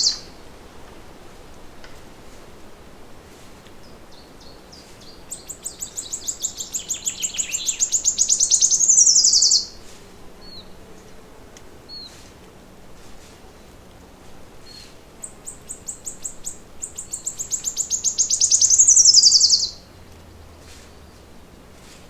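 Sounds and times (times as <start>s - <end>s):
faint bird chirps: 0.0s - 0.3s, 4.1s - 9.8s, 14.6s - 19.8s
songbird trilling: 0.0s - 0.3s, 3.8s - 9.8s, 14.6s - 19.9s.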